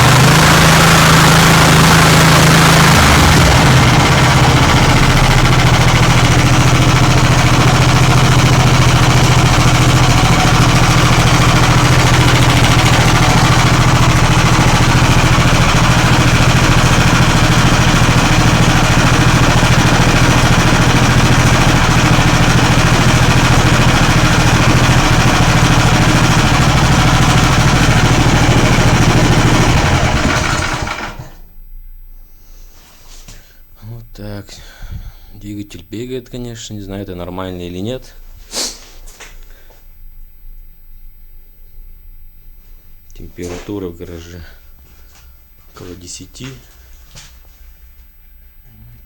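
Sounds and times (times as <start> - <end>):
small engine running: 0.0 - 31.5.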